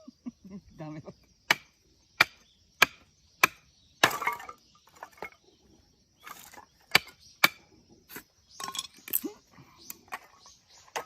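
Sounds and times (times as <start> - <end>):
blade striking wood: 1.5 - 4.5.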